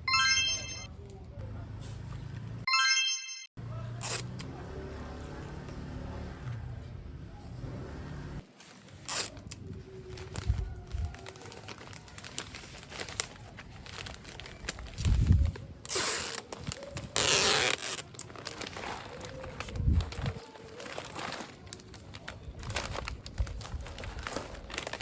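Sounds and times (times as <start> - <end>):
plastic wrapping crinkling: 8.5 - 25.0.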